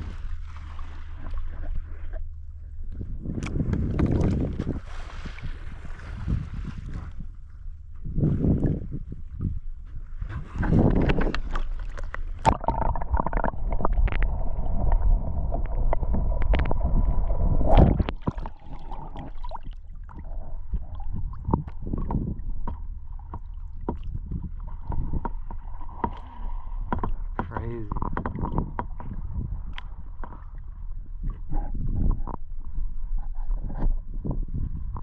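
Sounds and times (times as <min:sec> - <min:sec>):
water sloshing around kayak: 0:00.0 - 0:35.0
wind buffeting microphone: 0:02.9 - 0:11.8, 0:12.4 - 0:22.9, 0:23.9 - 0:25.7, 0:27.4 - 0:29.9, 0:31.0 - 0:35.0
sharp knocks and splashes: 0:03.3 - 0:07.2, 0:10.3 - 0:30.6.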